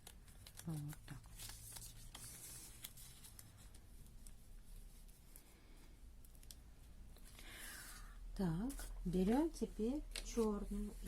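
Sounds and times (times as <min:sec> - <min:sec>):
paper rustling and crinkling: 0:00.0 - 0:06.6, 0:08.6 - 0:11.0.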